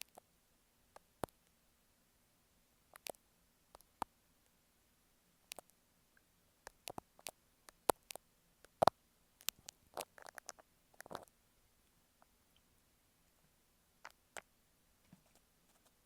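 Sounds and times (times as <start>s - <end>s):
scratchy rustling: 15.1s - 16.0s.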